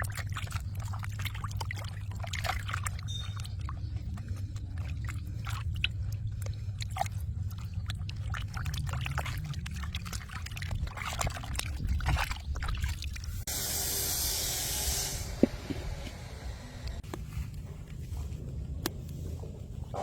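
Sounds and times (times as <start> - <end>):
water sloshing and trickling: 0.0 - 13.5.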